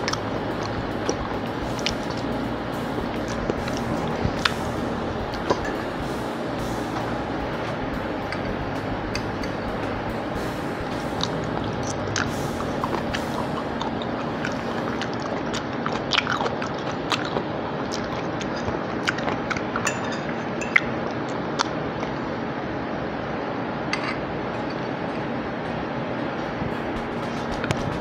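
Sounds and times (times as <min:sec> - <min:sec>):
steady background noise: 0:00.0 - 0:28.0
chewing soft food: 0:11.2 - 0:19.9.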